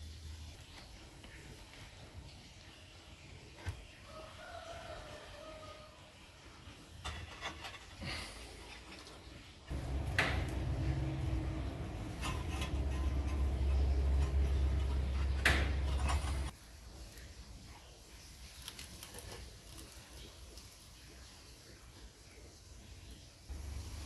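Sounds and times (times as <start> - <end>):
sharp knocks: 9.7 - 13.2
low rumble: 9.7 - 16.5
pottery knocking and clinking: 9.7 - 16.5.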